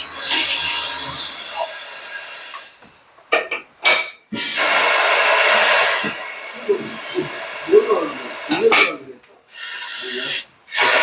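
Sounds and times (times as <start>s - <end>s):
compressed air hissing: 0.0s - 3.2s, 3.9s - 11.0s.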